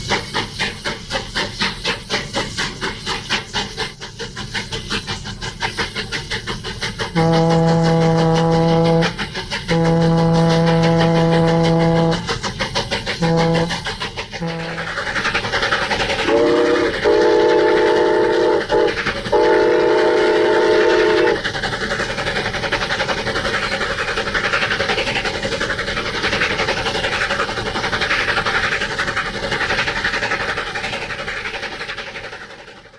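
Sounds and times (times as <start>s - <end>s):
locomotive exhaust and wheel noise: 0.0s - 32.9s
steam locomotive chime whistle: 7.1s - 12.4s, 13.2s - 15.2s, 16.2s - 21.4s.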